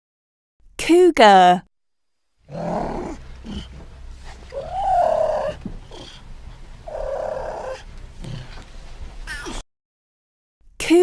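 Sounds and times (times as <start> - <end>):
steady low rumble: 2.3 - 9.3
mountain lion calling: 2.4 - 8.6.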